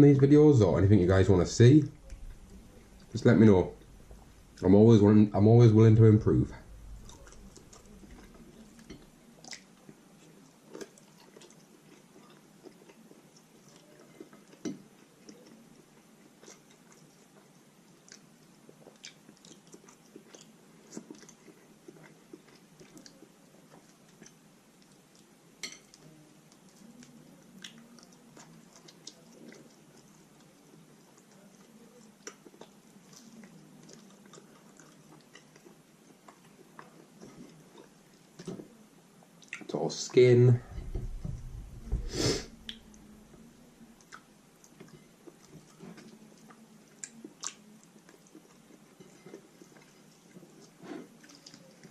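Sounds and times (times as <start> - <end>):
person chewing food: 6.6 - 39.7, 40.6 - 51.9
lip smacks: 40.8 - 43.1.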